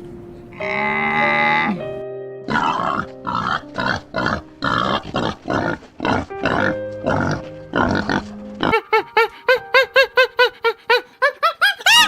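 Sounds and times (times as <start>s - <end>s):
background music: 0.0s - 12.0s
pig grunting: 0.6s - 1.9s, 2.5s - 9.1s.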